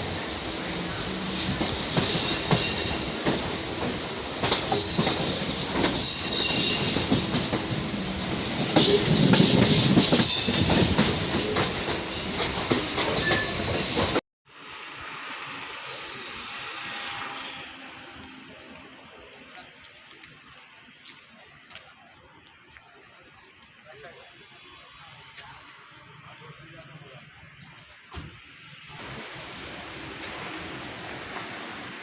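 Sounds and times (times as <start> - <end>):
train wheels clattering on track: 0.0 - 14.2
train wheels squealing: 0.9 - 14.2.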